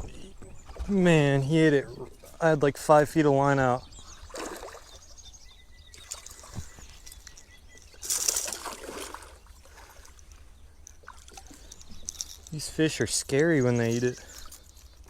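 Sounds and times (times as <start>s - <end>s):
water lapping around kayak: 0.0s - 15.0s
splash: 4.3s - 5.0s, 8.0s - 10.1s.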